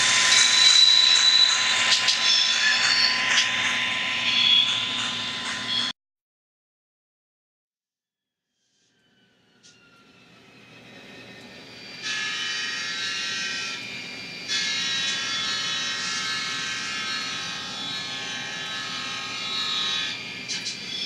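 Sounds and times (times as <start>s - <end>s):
multi-chime air horn: 0.0s - 5.9s
diesel locomotive engine: 9.5s - 12.1s.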